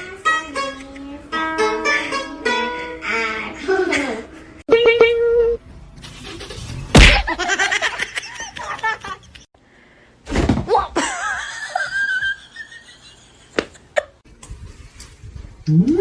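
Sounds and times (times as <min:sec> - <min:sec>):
loud sharp knock: 0:07.0 - 0:07.3
people laughing: 0:07.3 - 0:09.5, 0:11.0 - 0:14.1.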